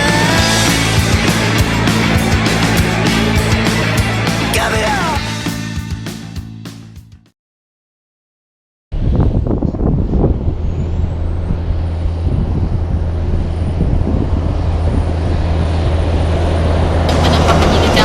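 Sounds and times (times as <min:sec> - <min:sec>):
diesel truck engine drone: 0:00.0 - 0:06.2, 0:09.0 - 0:18.0.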